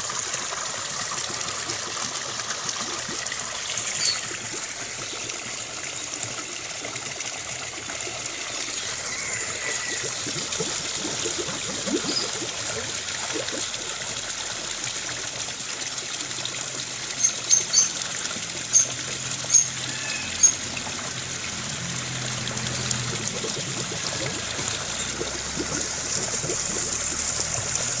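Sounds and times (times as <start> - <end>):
stream running: 0.0 - 28.0
birds calling: 3.6 - 4.4, 8.4 - 12.9, 22.6 - 27.7.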